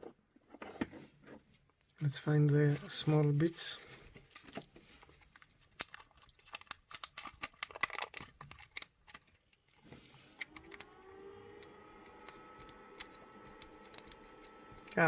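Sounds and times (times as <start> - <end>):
small plastic parts clicking: 4.1 - 11.0.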